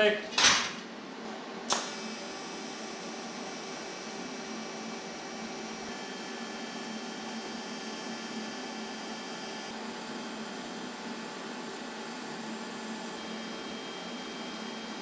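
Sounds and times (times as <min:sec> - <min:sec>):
electric machine hum: 0:01.7 - 0:15.0.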